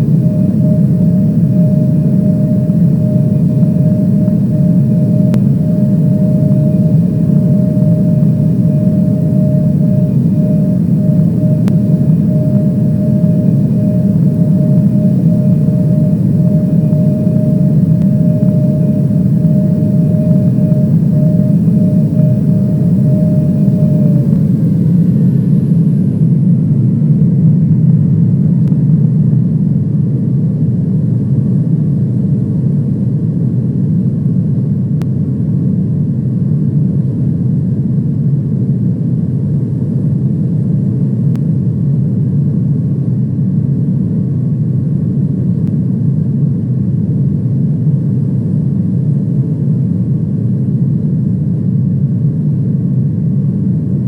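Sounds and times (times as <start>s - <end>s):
faint sliding whine: 0.0s - 26.4s
airliner cabin engine drone: 0.0s - 26.9s.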